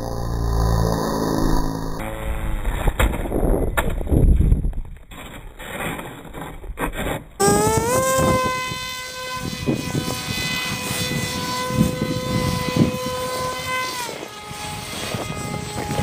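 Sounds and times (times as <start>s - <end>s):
electric propeller motor whining: 0.0s - 2.8s, 7.4s - 16.0s
wind buffeting microphone: 7.5s - 16.0s.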